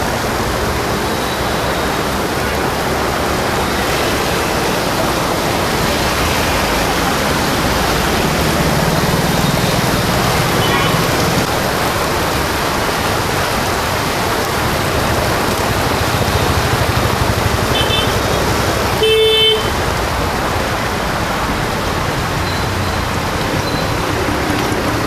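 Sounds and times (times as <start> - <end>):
rain hissing: 0.0 - 25.0
road traffic passing: 0.0 - 25.0
vehicle horn honking: 19.0 - 19.8.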